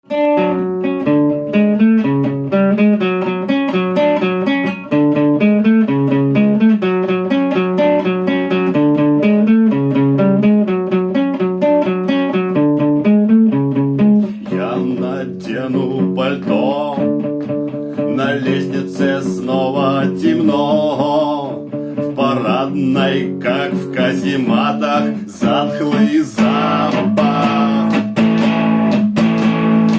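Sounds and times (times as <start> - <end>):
guitar picking arpeggios: 0.0 - 29.9
person singing: 14.2 - 28.4.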